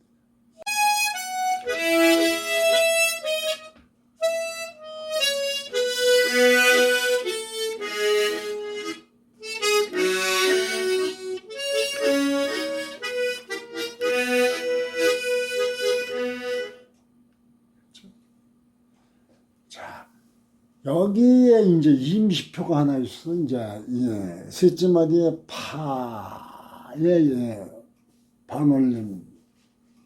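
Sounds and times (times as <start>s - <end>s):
solo harmonica melody: 0.6s - 17.0s.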